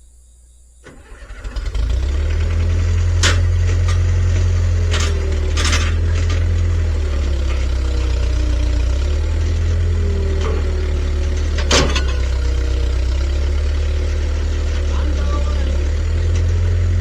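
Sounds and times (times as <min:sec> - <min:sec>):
engine idling: 0:00.8 - 0:17.0
sharp metallic clank: 0:10.4 - 0:12.6.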